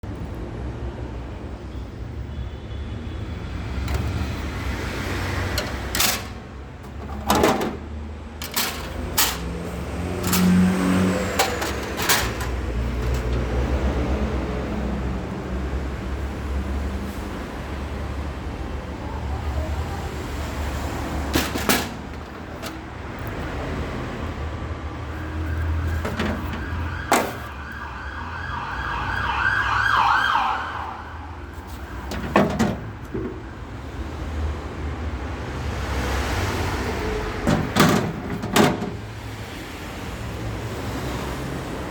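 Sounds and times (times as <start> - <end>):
road traffic rumble: 0.0 - 41.9
siren rising and falling: 26.7 - 31.5.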